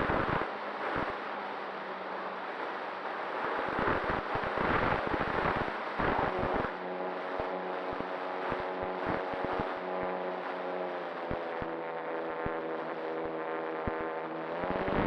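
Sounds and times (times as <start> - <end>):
hum of layered tones: 0.0 - 15.0.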